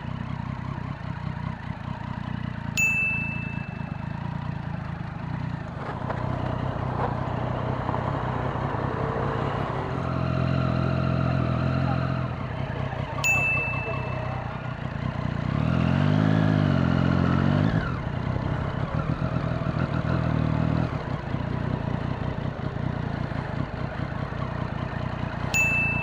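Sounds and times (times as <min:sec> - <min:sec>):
motorcycle engine revving: 0:00.0 - 0:26.0
short high ding: 0:02.8 - 0:04.2, 0:13.2 - 0:14.7, 0:25.5 - 0:26.0.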